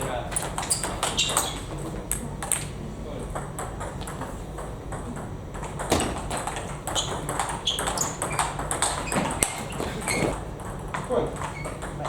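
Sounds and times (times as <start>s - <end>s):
table tennis ball clicking: 3.4s - 9.7s.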